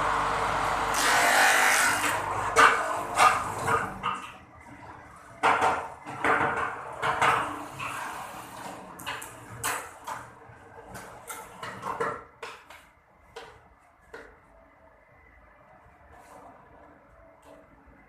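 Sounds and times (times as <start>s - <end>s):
hard objects knocking and clattering: 5.4s - 7.6s, 9.0s - 14.4s.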